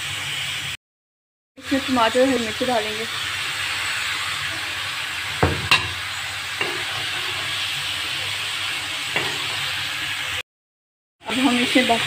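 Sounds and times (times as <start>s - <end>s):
food sizzling in a wok: 0.0s - 0.8s, 1.6s - 10.4s, 11.2s - 12.0s
utensil knocking against pan: 5.4s - 6.0s.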